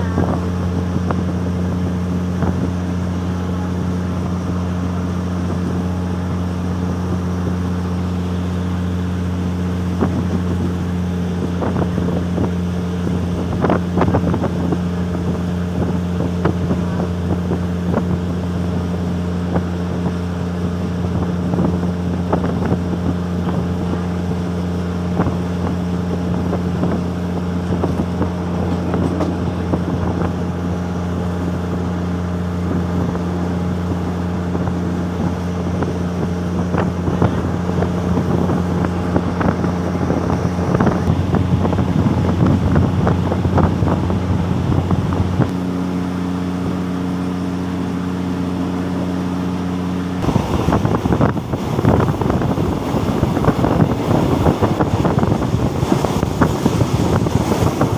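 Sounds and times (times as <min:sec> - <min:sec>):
diesel train engine drone: 0:00.0 - 0:57.9.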